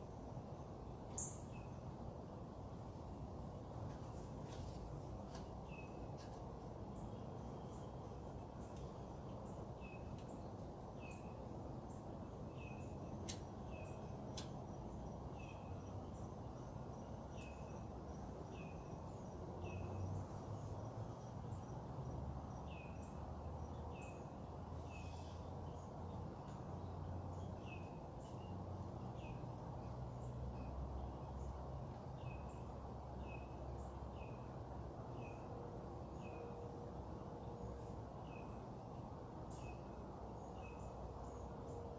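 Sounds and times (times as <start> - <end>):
low background rumble and hiss: 0.0 - 41.9
bird chirping: 1.1 - 1.9, 6.9 - 21.8, 22.5 - 31.6.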